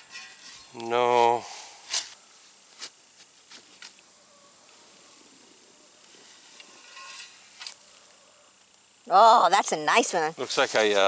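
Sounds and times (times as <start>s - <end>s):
gritty scrapes of digging soil: 0.0s - 4.0s, 10.4s - 11.0s.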